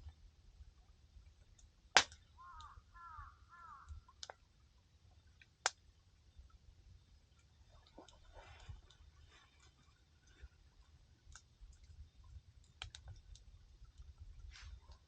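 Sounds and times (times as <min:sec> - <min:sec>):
campfire crackling and popping: 0:00.0 - 0:02.8, 0:03.8 - 0:04.5, 0:05.1 - 0:05.9, 0:11.1 - 0:15.0
crow cawing: 0:02.4 - 0:04.1.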